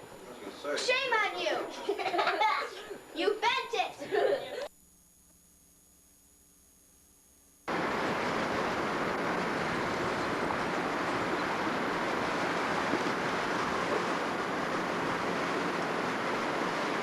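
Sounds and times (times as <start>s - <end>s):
wind noise on microphone: 7.7s - 17.0s.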